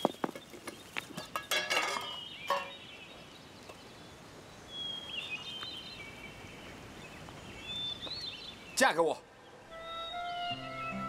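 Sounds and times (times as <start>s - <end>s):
metal tin clinking: 1.2s - 2.8s.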